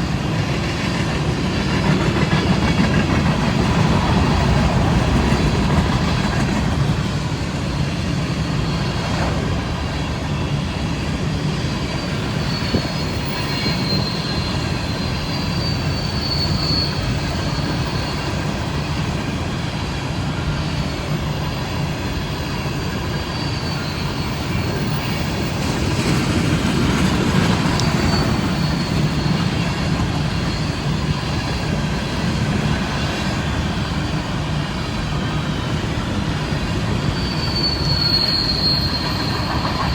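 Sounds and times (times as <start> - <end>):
train wheels rumbling on rail: 0.0 - 39.9
high-pitched wheel squeal: 11.4 - 19.1, 20.5 - 34.2, 36.4 - 39.9.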